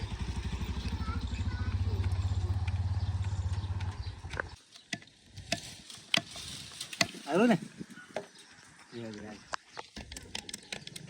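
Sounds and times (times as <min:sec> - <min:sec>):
diesel engine idling: 0:00.0 - 0:04.6
sharp clicks: 0:02.0 - 0:05.0.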